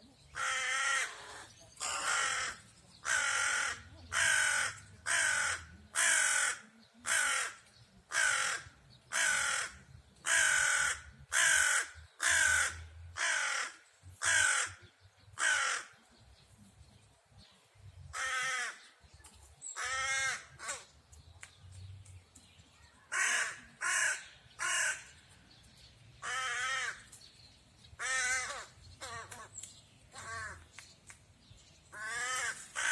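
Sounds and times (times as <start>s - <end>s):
crows cawing: 0.4s - 16.0s, 18.1s - 18.9s, 19.8s - 20.9s, 23.1s - 25.2s, 26.2s - 27.1s, 28.0s - 29.5s, 30.2s - 30.6s, 32.0s - 32.9s.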